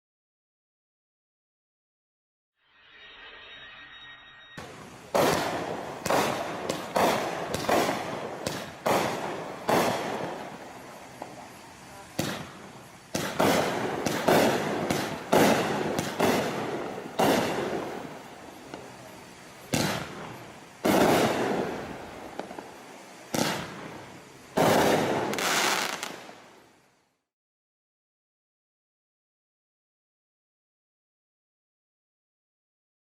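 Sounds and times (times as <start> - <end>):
firework shots with hiss: 4.6 - 27.1.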